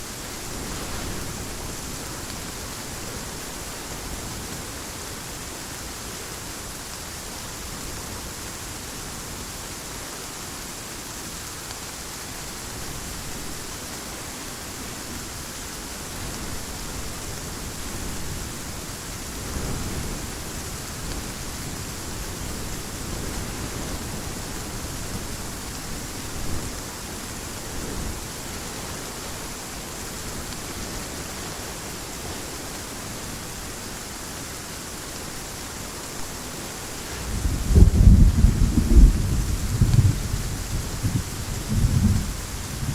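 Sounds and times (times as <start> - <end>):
heavy rain falling: 0.0 - 42.9
thunder rumbling: 37.0 - 42.9.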